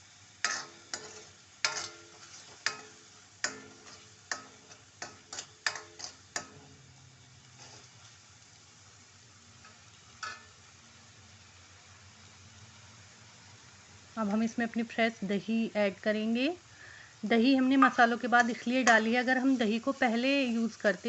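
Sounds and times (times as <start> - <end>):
gravy sizzling: 0.0 - 21.0
spoon clacking against metal pan: 0.4 - 6.8, 9.6 - 10.6, 17.5 - 19.3.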